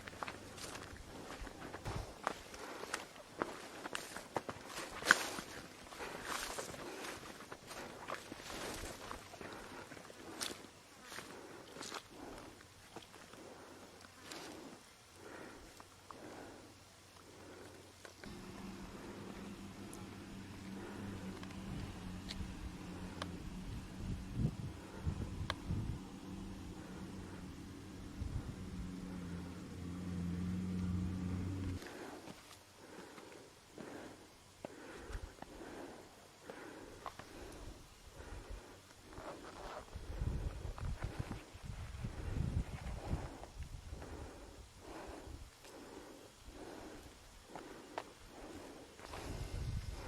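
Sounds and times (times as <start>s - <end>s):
vehicle engine running: 17.4s - 32.3s.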